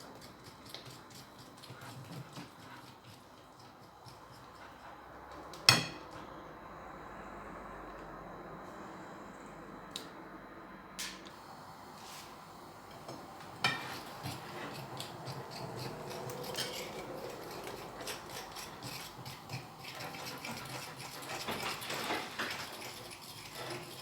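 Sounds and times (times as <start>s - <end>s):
utensil scraping bowl: 0.0s - 5.0s, 12.0s - 24.0s.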